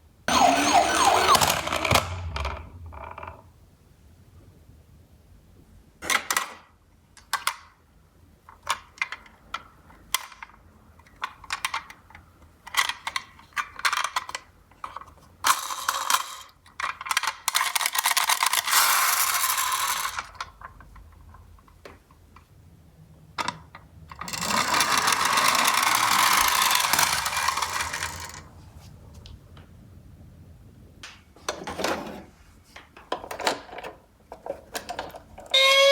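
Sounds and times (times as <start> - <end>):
toy cars clicking: 0.3 - 2.5, 11.1 - 21.1, 23.5 - 28.5
toy cars rolling down cardboard: 0.3 - 3.4, 12.7 - 21.0, 23.5 - 28.5, 33.1 - 35.9.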